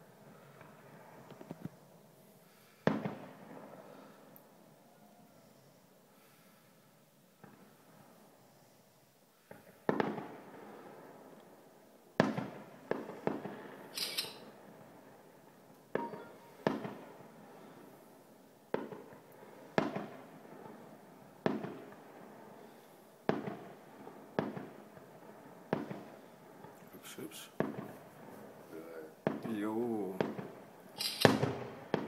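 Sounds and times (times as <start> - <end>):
fireworks bangs with echo: 2.5 - 4.3, 9.4 - 32.0.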